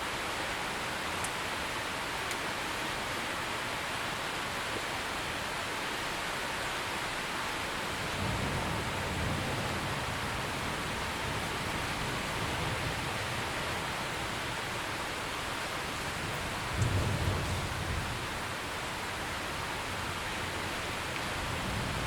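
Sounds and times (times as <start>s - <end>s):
steady rain falling: 0.0s - 22.0s
low rumble of thunder: 8.0s - 14.8s, 15.8s - 22.0s.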